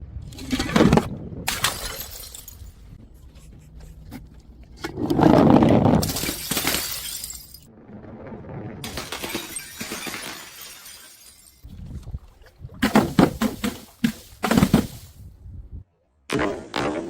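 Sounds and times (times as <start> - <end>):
glass pieces clinking: 1.5 - 2.8, 6.0 - 7.7, 8.9 - 11.7
glass bottles smashing: 1.5 - 3.0, 6.0 - 7.7, 8.9 - 11.7, 12.8 - 15.2.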